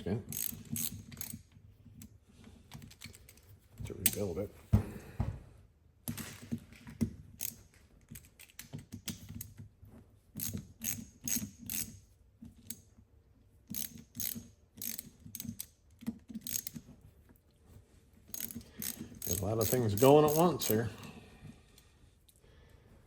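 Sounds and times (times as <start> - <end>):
ratchet wrench clicking: 0.3 - 1.5, 7.4 - 8.6, 10.4 - 12.0, 13.7 - 16.8, 18.3 - 20.8.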